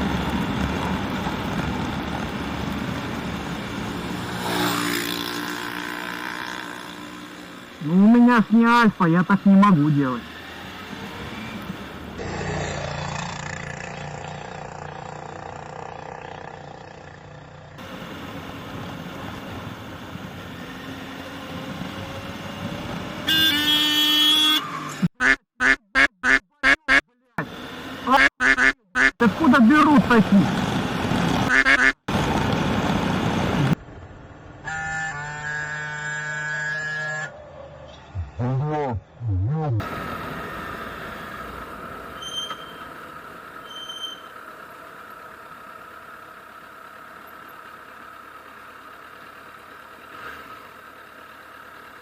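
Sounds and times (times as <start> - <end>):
rushing wind and road noise: 0.0 - 8.3, 17.8 - 25.0, 29.2 - 34.7
road and wind noise: 0.0 - 25.3, 26.7 - 52.0
vehicle horn blast: 23.2 - 24.8.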